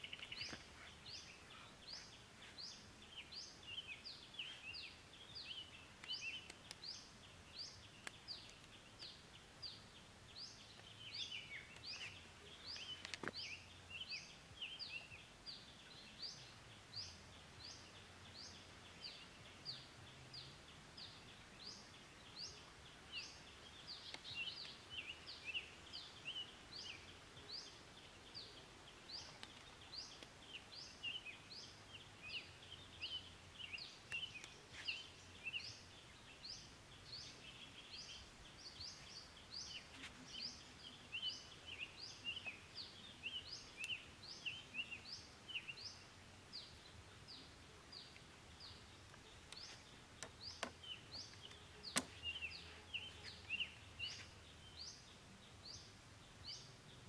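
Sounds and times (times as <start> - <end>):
birds chirping: 0.0 - 57.0
soft bird twittering: 0.0 - 57.0
faint clicks: 6.0 - 7.0, 7.9 - 9.2, 11.6 - 13.5, 29.1 - 30.4, 49.0 - 52.3.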